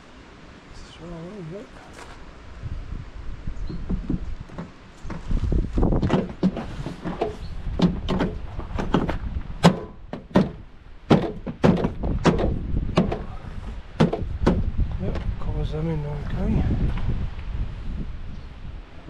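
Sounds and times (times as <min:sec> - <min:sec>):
knocks on plastic trim: 0:06.0 - 0:13.3, 0:14.0 - 0:15.3.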